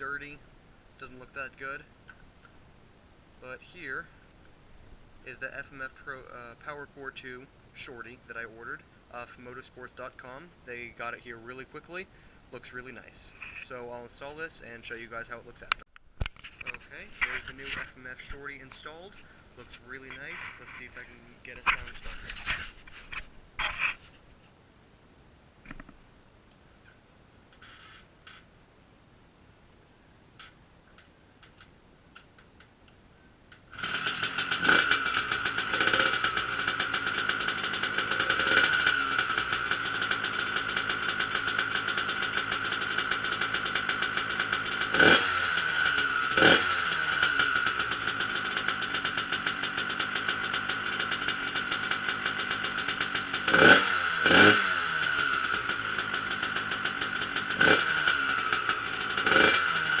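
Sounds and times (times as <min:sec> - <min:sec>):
two-stroke engine idling: 0:33.8 - 1:00.0.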